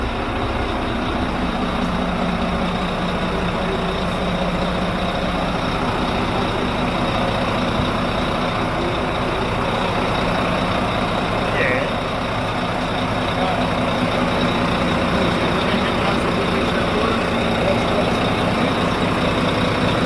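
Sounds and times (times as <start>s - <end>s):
diesel engines droning: 0.0s - 20.0s.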